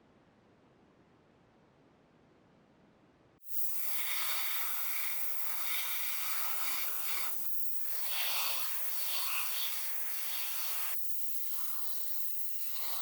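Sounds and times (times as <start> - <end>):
spray paint hissing: 3.5 - 13.0.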